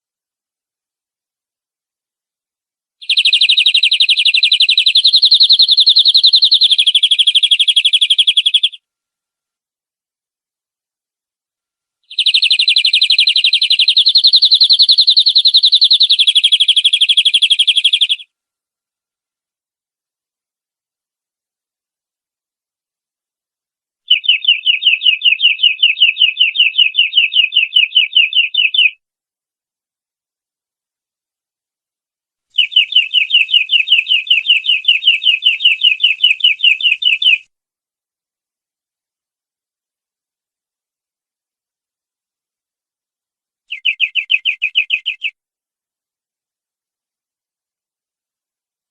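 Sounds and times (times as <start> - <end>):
canary singing rapid trill: 3.0 - 8.8, 12.1 - 18.3, 24.1 - 29.0, 32.6 - 37.5, 43.7 - 45.4.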